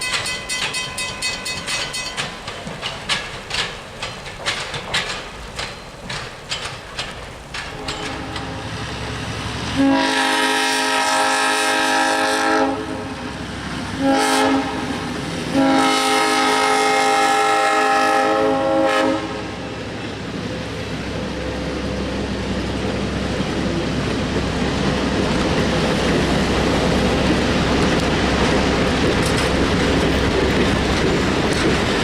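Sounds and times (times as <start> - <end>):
moving train rumble: 0.0 - 32.0
train horn blasts: 7.8 - 8.8, 9.7 - 13.2, 14.0 - 19.8.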